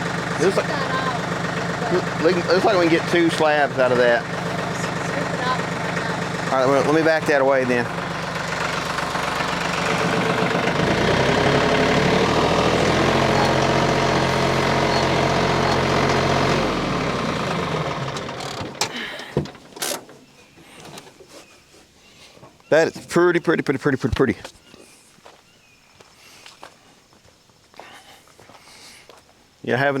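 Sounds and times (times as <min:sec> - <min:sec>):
tractor diesel engine running: 0:00.0 - 0:20.2.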